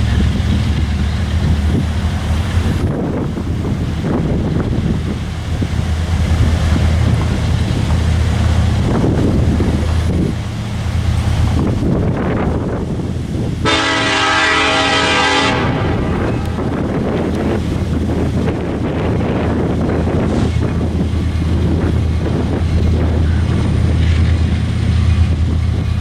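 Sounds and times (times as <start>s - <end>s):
diesel locomotive rumbling: 0.0s - 26.0s
locomotive air horn blast: 13.6s - 16.9s.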